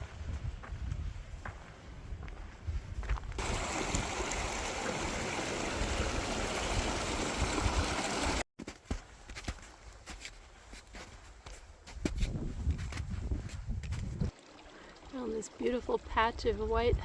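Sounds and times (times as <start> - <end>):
wind rumbling on microphone: 0.0 - 8.4, 11.9 - 14.3, 16.0 - 17.0
stream water rushing: 3.4 - 8.4.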